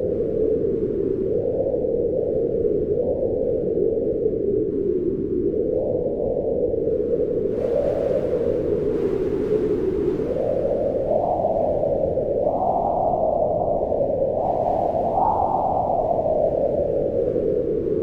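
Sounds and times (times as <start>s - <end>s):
wind gusting: 7.5s - 18.0s.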